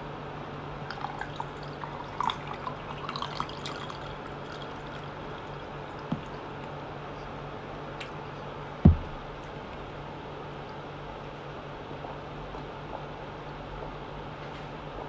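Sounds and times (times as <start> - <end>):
soft knock: 8.8 - 9.2.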